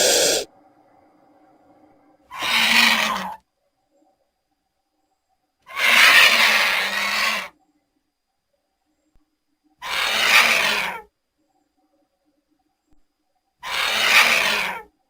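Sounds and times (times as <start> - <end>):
vulture hissing: 0.0 - 0.5, 2.3 - 3.4, 9.8 - 11.0, 13.6 - 14.8.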